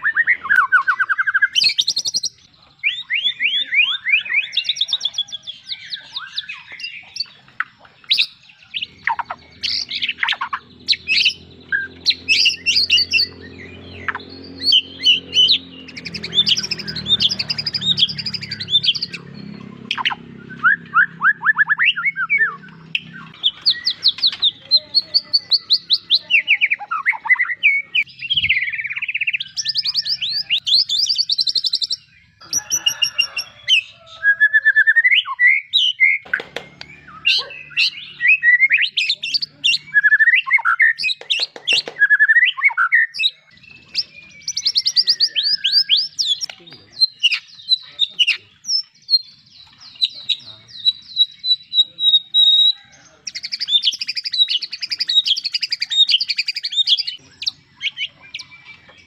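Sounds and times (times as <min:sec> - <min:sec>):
songbird chirps and trills: 0:00.0 - 0:59.0.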